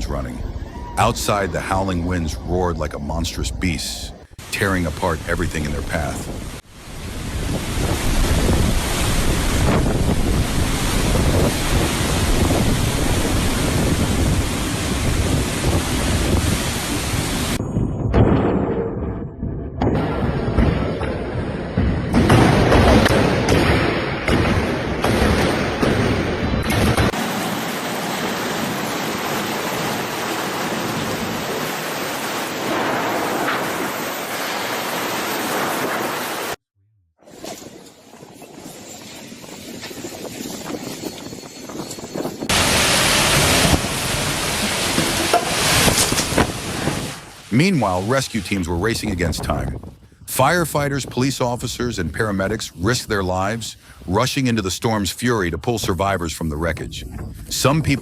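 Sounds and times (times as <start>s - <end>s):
storm wind blowing: 0.0s - 36.6s, 37.3s - 54.7s, 56.6s - 58.0s
heavy low wind rumble: 3.4s - 23.2s, 48.7s - 52.7s, 56.8s - 58.0s
heavy surf: 4.3s - 17.6s, 27.1s - 36.6s, 42.5s - 49.7s.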